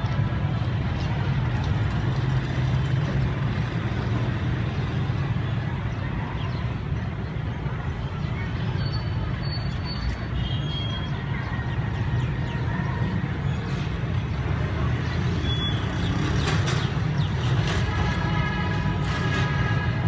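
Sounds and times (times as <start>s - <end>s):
train rumbling past: 16.0s - 20.0s.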